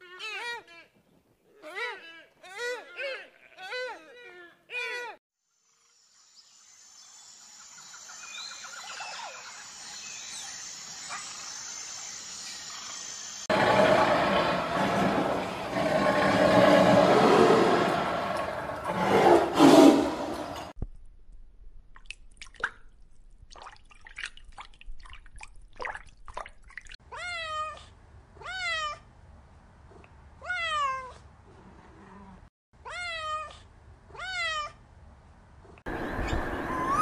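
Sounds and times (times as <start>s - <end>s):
cat meowing: 27.1s - 29.0s, 30.4s - 31.2s, 32.8s - 33.6s, 34.2s - 34.8s.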